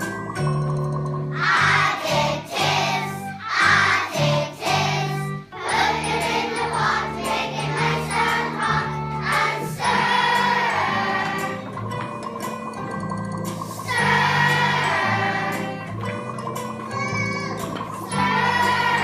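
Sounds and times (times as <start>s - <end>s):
instrumental accompaniment: 0.0s - 19.0s
choir singing: 1.4s - 11.8s, 13.8s - 16.0s, 18.0s - 19.0s.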